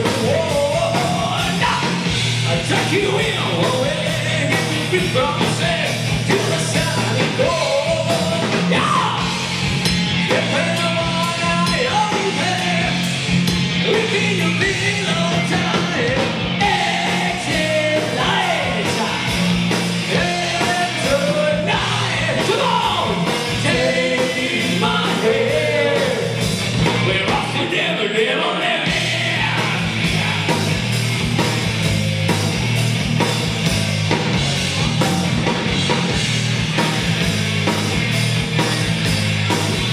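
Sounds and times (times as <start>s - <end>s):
rock band playing live: 0.0s - 39.9s
person singing: 13.9s - 26.4s.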